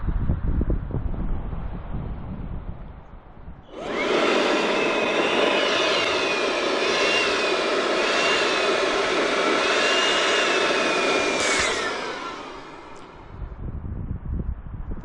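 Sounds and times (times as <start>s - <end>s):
balloon inflator blowing: 3.7s - 13.5s.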